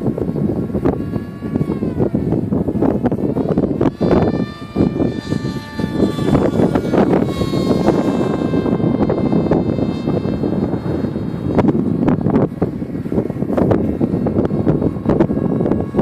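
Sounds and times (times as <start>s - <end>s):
model plane motor whining: 0.0s - 16.0s
wind buffeting microphone: 0.0s - 16.0s.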